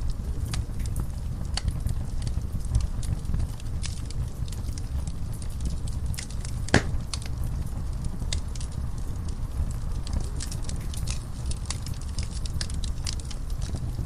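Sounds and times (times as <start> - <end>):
wood fire crackling: 0.0 - 14.0
loud fire pop: 6.7 - 7.2.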